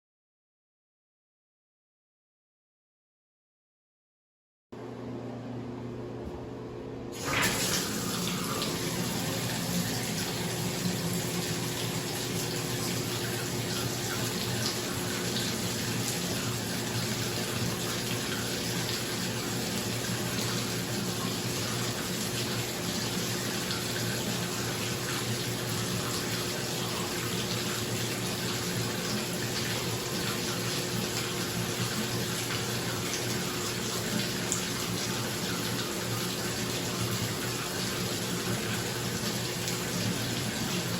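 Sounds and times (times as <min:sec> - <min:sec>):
exhaust fan humming: 0:04.8 - 0:34.4
water gushing into bathtub: 0:07.2 - 0:40.9.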